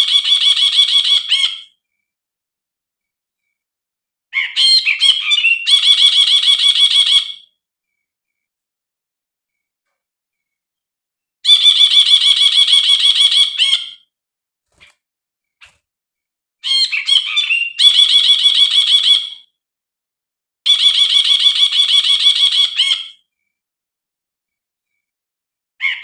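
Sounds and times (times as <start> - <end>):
bird singing rapid repeated notes: 0.0 - 1.8, 4.4 - 7.6, 11.4 - 14.0, 16.6 - 19.4, 20.7 - 23.2.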